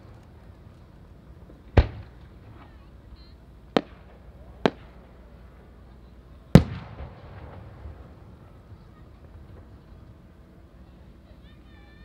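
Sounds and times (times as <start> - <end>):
sharp firework cracks: 1.7 - 2.8, 3.7 - 5.7, 6.5 - 9.8.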